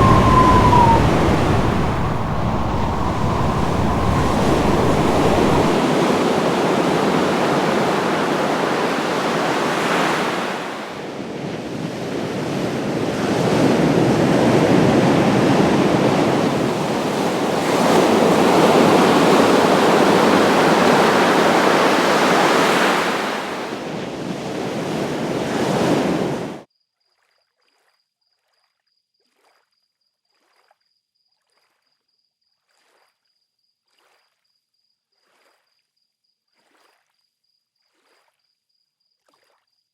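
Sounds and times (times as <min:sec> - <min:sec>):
faint high steady tone: 0:00.0 - 0:07.6
ocean surf breaking: 0:00.0 - 0:26.6
wind: 0:00.0 - 0:26.6.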